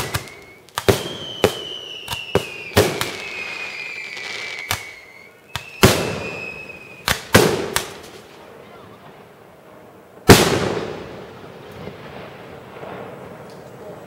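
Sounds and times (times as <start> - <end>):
falling firework whistles: 0.0 - 8.4
firework bangs: 0.0 - 14.0.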